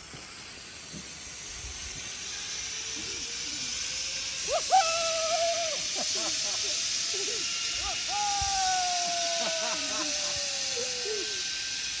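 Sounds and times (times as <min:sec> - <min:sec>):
zip-line trolley on steel cable: 0:00.0 - 0:12.0
person shouting: 0:04.5 - 0:05.8, 0:07.3 - 0:11.4.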